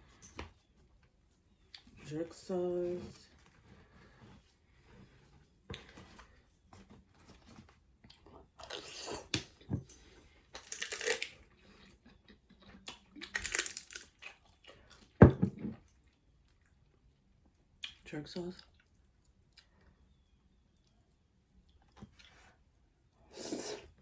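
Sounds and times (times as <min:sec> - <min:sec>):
chicken tearing and crunching: 0:10.5 - 0:12.0, 0:12.6 - 0:15.0
chewing and mouth sounds: 0:10.5 - 0:15.2.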